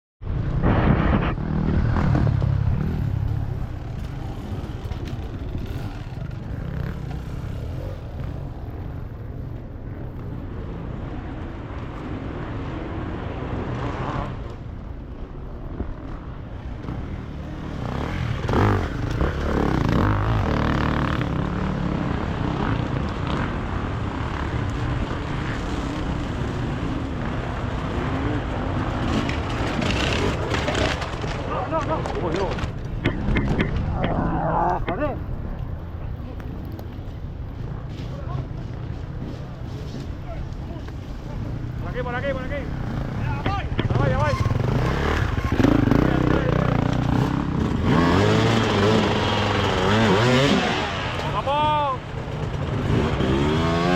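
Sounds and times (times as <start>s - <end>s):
motorcycle engine revving: 0.5s - 9.3s, 15.9s - 35.2s, 40.7s - 53.9s.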